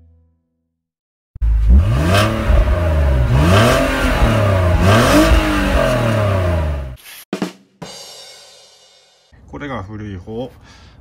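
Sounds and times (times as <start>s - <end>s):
car engine revving: 1.4s - 7.0s.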